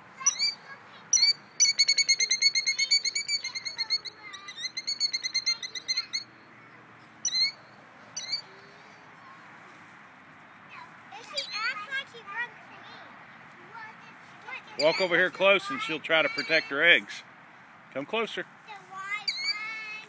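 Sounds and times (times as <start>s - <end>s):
killdeer alarm calls: 0.2s - 6.4s, 7.2s - 8.5s, 14.8s - 15.1s, 19.2s - 19.7s.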